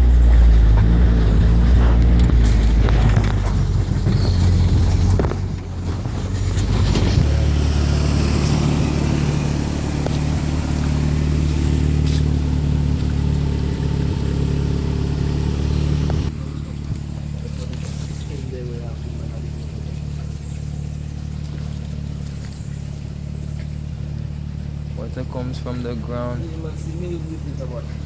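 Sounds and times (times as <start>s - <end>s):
road noise: 0.0s - 28.0s
vehicle engine running: 0.0s - 28.0s.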